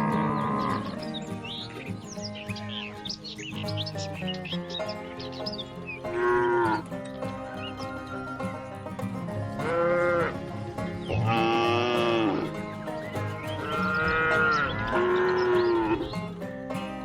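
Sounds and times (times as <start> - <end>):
cows mooing: 0.0 - 1.3, 6.0 - 7.0, 9.4 - 12.6, 13.4 - 16.1
background music: 0.0 - 17.0.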